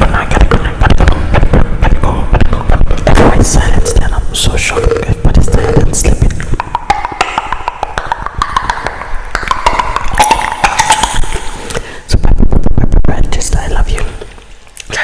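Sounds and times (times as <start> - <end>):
clicks and taps on microphone: 4.7 - 11.8.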